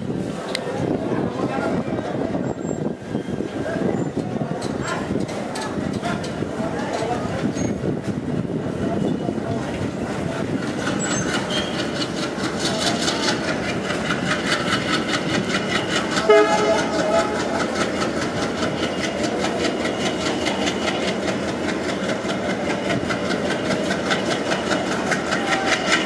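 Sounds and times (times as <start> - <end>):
train wheels clicking over rail joints: 2.1 - 26.0
train horn blast: 16.2 - 17.6.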